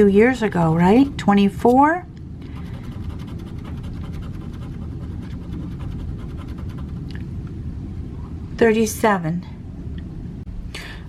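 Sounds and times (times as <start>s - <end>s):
steady low rumble: 0.0s - 11.0s
coin scratching ticket: 2.7s - 7.0s.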